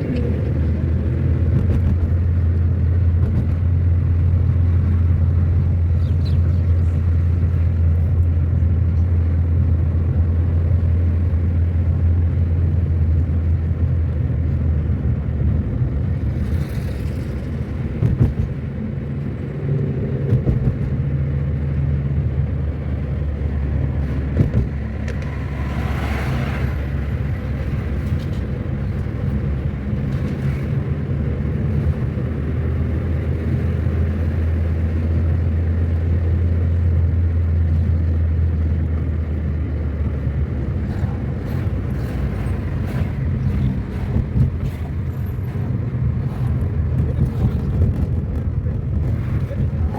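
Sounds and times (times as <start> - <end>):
car engine and road rumble: 0.0 - 49.9
rush of noise: 23.2 - 28.0.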